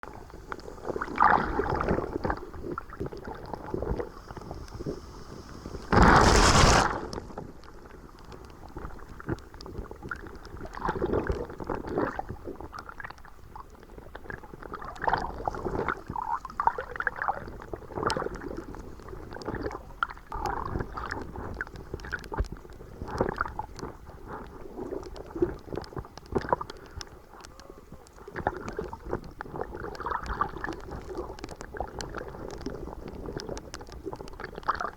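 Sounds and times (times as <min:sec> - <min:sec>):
water sloshing and gurgling: 0:00.2 - 0:27.2, 0:28.3 - 0:34.9
loud splashing: 0:05.9 - 0:07.0.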